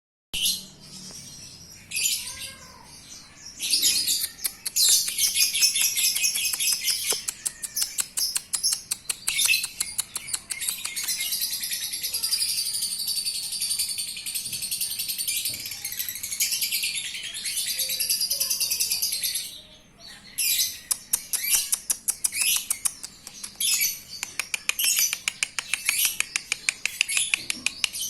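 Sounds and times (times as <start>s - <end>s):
bird chattering trill: 3.8s - 12.3s, 20.5s - 28.0s.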